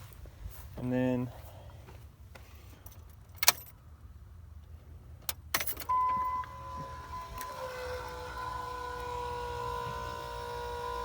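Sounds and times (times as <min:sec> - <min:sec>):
electric fuel pump whine: 0:05.9 - 0:11.0.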